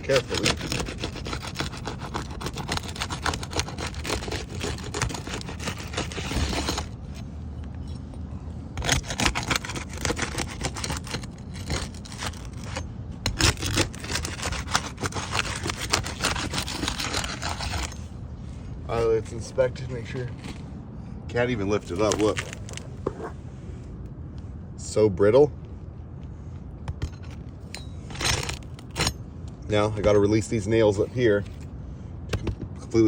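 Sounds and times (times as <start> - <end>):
roof shingle scraping and crackling: 0.0 - 18.2, 18.9 - 20.7, 21.6 - 23.4, 28.0 - 29.1.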